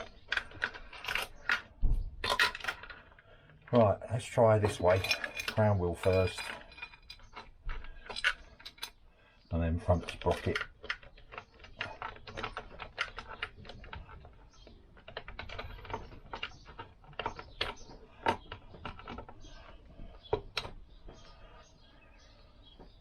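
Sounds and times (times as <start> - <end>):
chain clinking against metal: 4.6 - 8.9.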